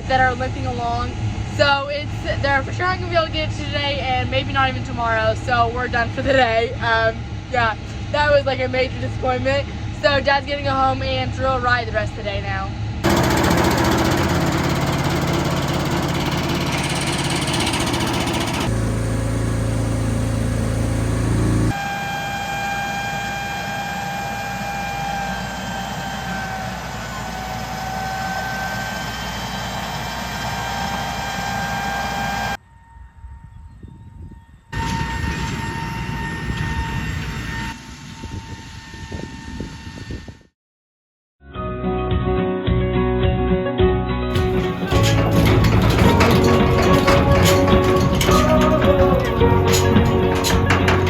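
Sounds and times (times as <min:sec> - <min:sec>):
farm machinery engine: 0:13.0 - 0:32.6, 0:44.3 - 0:51.0.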